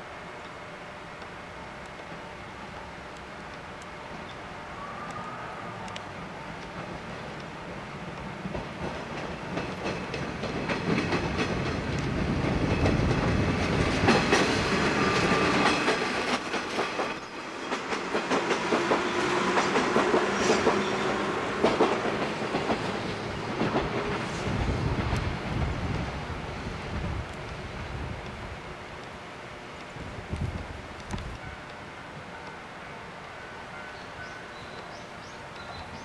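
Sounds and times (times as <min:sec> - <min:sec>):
train wheels clacking on rails: 0:06.4 - 0:26.1.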